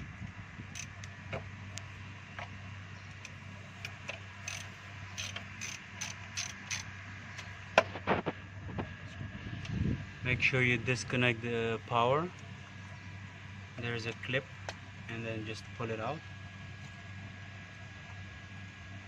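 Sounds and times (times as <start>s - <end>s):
hand ratchet clicking: 3.2s - 6.9s.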